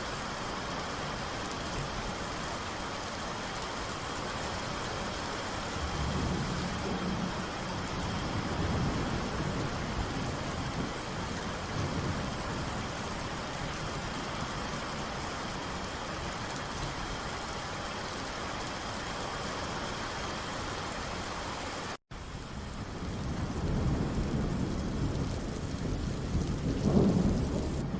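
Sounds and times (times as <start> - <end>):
steady rain falling: 0.0 - 27.9
low rumble of thunder: 5.7 - 17.0, 22.3 - 27.9.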